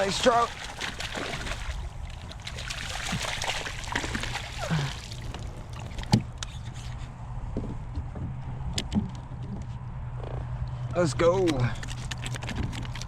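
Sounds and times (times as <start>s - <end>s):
fish splashing in water: 0.0s - 6.2s.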